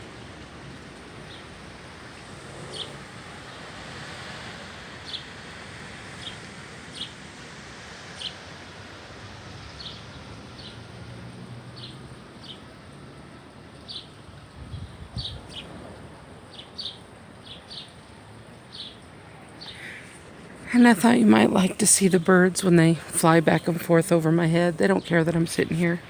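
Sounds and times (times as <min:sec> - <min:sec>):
small birds chirping: 0:01.1 - 0:03.8, 0:05.0 - 0:05.4, 0:06.1 - 0:07.2, 0:08.1 - 0:08.5, 0:09.6 - 0:11.0, 0:11.7 - 0:12.9, 0:13.7 - 0:26.0
wind noise: 0:14.3 - 0:16.9.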